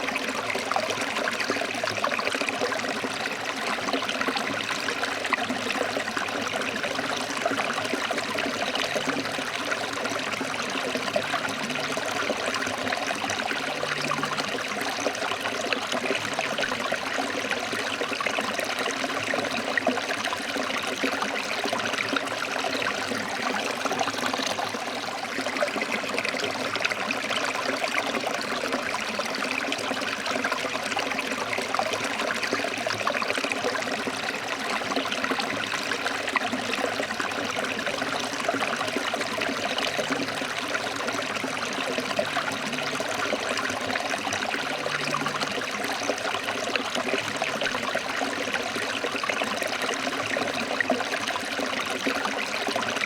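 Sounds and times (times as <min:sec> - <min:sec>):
stream flowing over rocks: 0:00.0 - 0:53.0.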